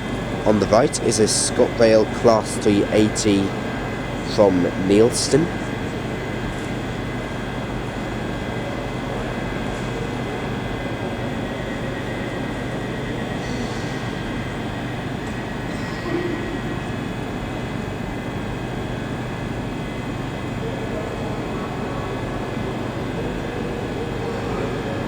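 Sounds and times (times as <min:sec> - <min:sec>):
electric trains humming: 0:00.0 - 0:25.0.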